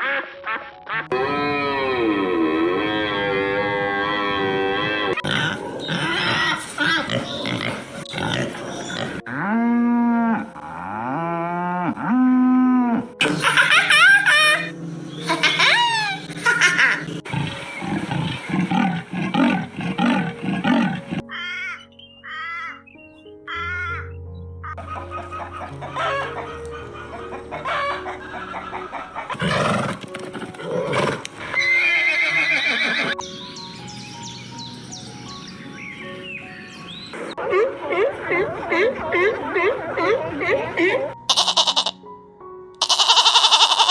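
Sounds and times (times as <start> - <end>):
background music: 0.0 - 43.9
cow mooing: 1.1 - 13.1, 17.2 - 21.3
chickens clucking: 5.1 - 9.2, 13.2 - 21.3, 24.8 - 31.3, 33.2 - 41.2
animal calls rising and falling: 13.2 - 22.8, 24.8 - 33.3, 36.0 - 42.0, 42.8 - 43.9
rooster crowing: 24.8 - 29.4.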